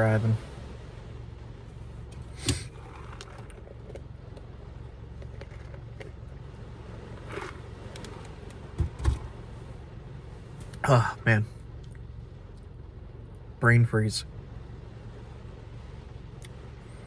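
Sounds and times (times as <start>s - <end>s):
steady low rumble: 0.0s - 17.0s
dull thumps: 8.8s - 9.4s.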